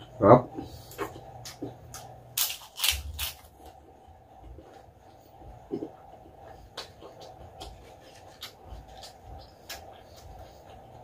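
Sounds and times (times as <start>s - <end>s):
crunching crispy food in mouth: 2.4s - 3.5s.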